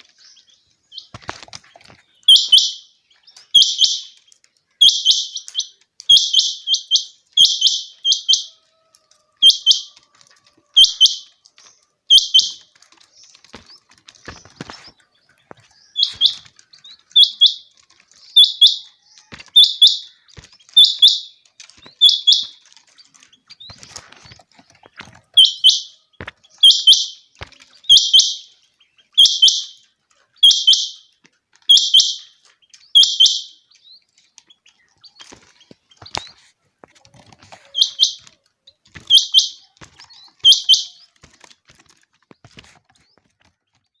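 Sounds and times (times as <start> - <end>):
quail calls: 2.2 - 12.8, 13.5 - 22.6, 25.0 - 31.1, 31.7 - 33.7, 37.1 - 41.5.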